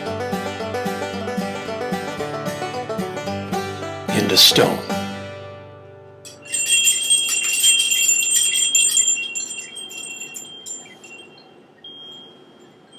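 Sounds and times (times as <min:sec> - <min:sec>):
small bells jingling: 0:06.3 - 0:12.9.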